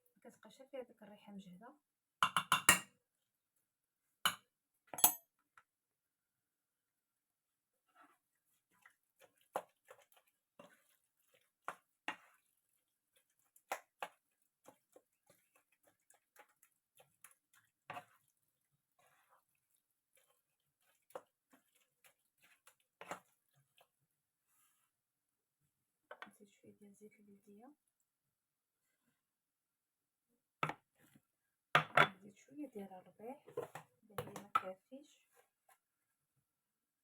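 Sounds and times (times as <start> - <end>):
spoon tapping a dish: 2.2 - 2.9
soft squishes of mixing food: 2.9 - 37.0.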